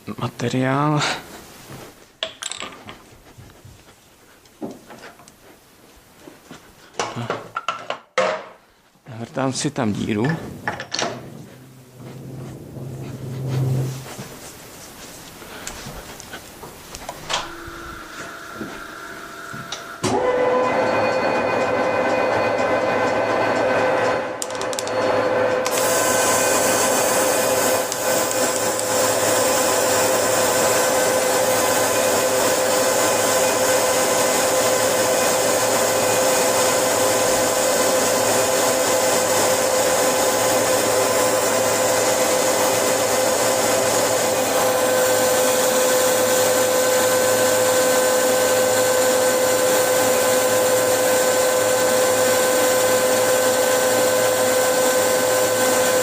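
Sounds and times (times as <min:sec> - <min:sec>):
higher machine tone: 0:11.0 - 0:14.4, 0:17.2 - 0:23.2
metal lathe humming and whining: 0:17.3 - 0:56.0.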